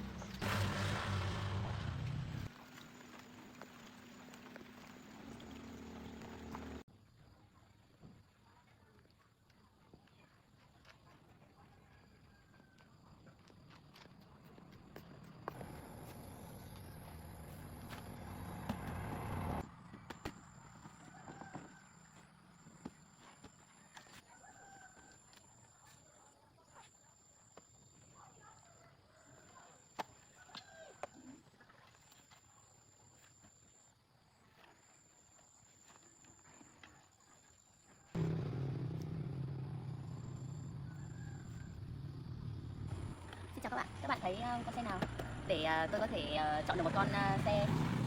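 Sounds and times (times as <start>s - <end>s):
engine running: 0.0s - 6.8s, 15.5s - 19.9s, 38.2s - 48.0s
faint rooster crowing: 11.8s - 13.1s, 20.8s - 22.3s, 24.2s - 25.7s, 28.8s - 31.4s, 40.6s - 42.3s.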